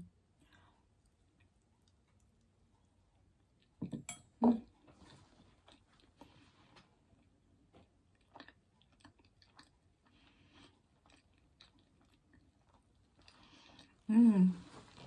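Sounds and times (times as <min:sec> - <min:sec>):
chewing with mouth closed: 0:04.7 - 0:14.1.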